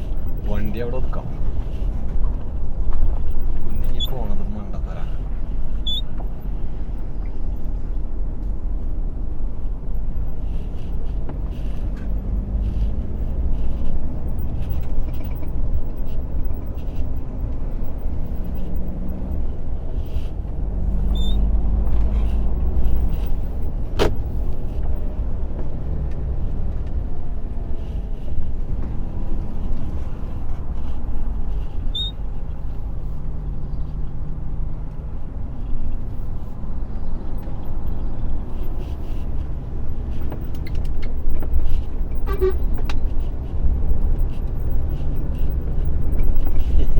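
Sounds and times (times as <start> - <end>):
heavy truck engine rumbling: 0.0 - 46.9.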